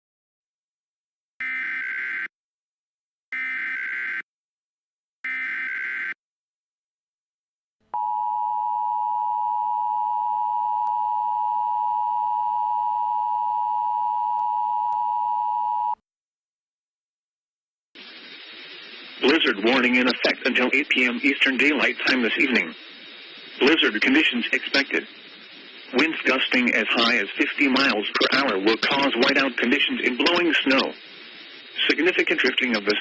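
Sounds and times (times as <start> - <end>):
steady attention tone: 8.0 - 16.0, 18.0 - 33.0
buzzy digital data bursts: 18.0 - 33.0.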